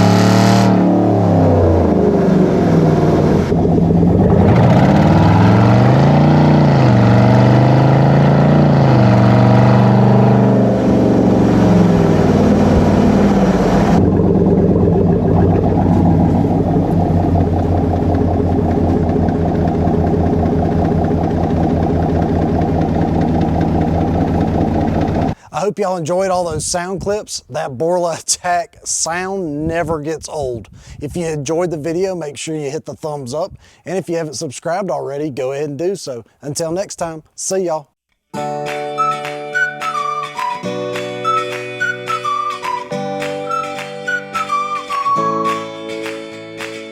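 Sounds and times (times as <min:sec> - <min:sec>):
car exhaust while driving: 0:00.0 - 0:25.4.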